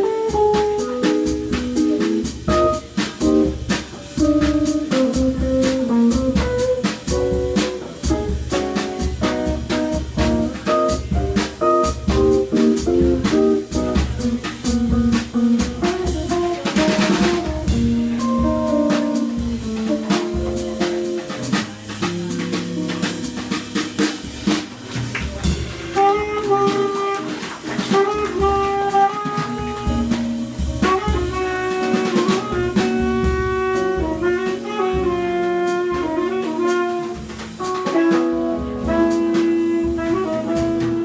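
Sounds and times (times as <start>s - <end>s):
guitar: 0.0s - 35.2s, 35.8s - 41.0s
drum kit: 0.0s - 41.0s
tenor saxophone melody: 26.0s - 41.0s.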